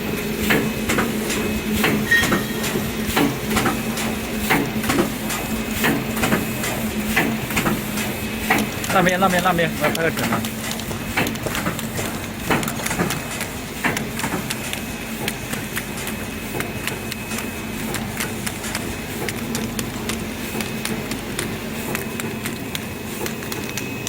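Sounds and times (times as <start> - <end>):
machine mechanical hum: 0.0 - 24.0.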